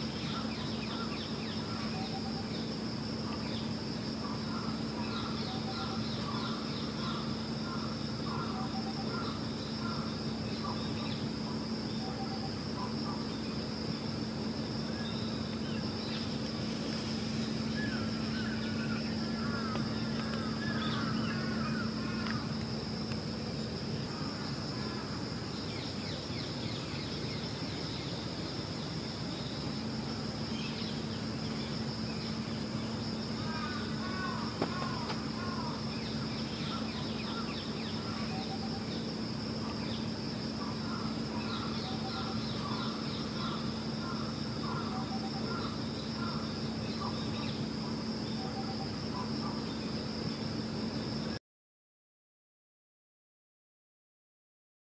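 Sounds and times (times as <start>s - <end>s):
small birds calling: 0.0s - 13.6s, 17.5s - 28.3s, 30.4s - 47.7s
constant low hum: 0.0s - 51.4s
steady hiss: 12.6s - 48.0s.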